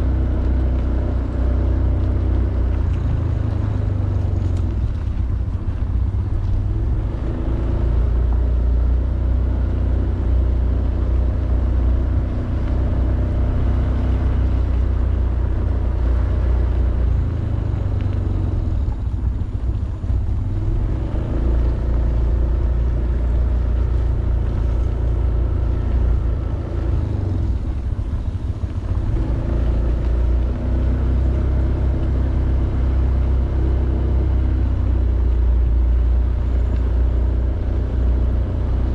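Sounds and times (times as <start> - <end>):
wind rumble on microphone: 0.0 - 38.9.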